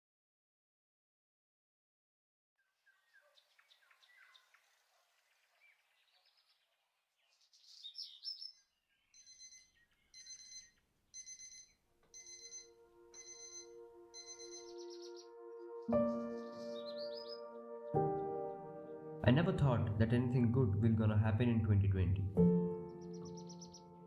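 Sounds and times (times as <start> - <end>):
faint bird chirps: 2.6 - 17.6, 22.8 - 24.0
alarm clock beeping: 9.2 - 14.8
sustained musical tones: 12.2 - 24.0.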